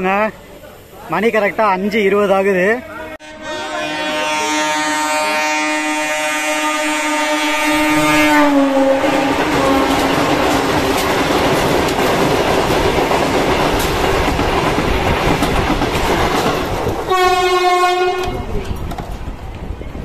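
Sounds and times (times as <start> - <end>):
train rushing past: 0.0 - 20.0
train horn blast: 2.8 - 10.4, 17.1 - 18.5
wheels clattering over rails: 9.2 - 17.1.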